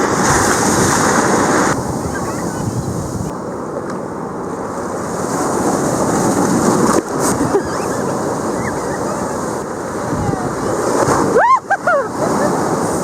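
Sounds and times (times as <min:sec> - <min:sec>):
wind buffeting microphone: 0:00.0 - 0:03.5, 0:05.0 - 0:11.6
ocean surf breaking: 0:00.0 - 0:13.0.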